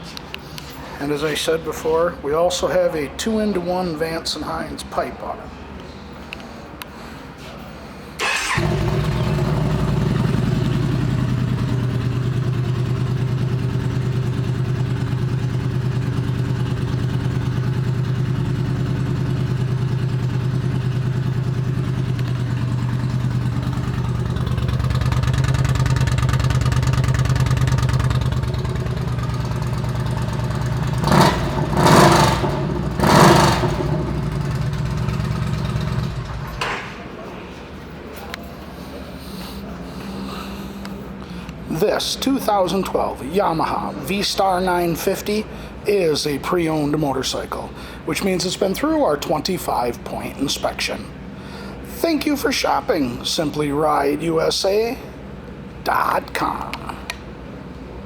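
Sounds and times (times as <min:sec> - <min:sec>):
motorcycle engine idling: 0:08.2 - 0:36.6
motorcycle throttle blips: 0:08.2 - 0:37.0
motorcycle engine starting: 0:08.2 - 0:37.2.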